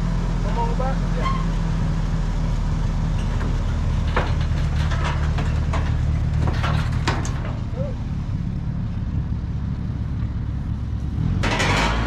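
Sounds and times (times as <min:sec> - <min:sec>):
vehicle engine idling: 0:00.0 - 0:11.5
sharp metallic knocks: 0:11.4 - 0:12.0.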